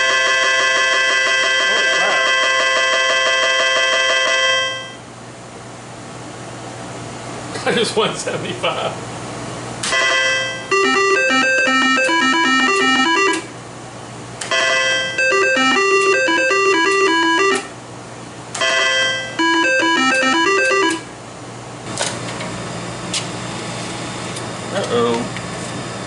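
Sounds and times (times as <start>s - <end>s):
slot machine beeping melody: 0.0s - 5.0s, 10.0s - 13.5s, 14.5s - 17.7s, 18.6s - 21.1s.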